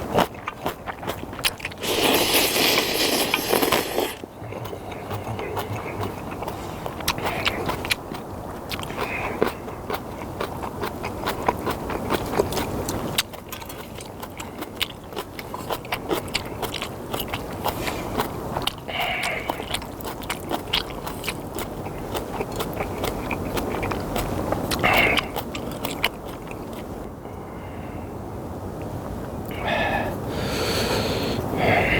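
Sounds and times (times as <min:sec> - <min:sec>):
person slurping noodles: 0:01.6 - 0:07.8.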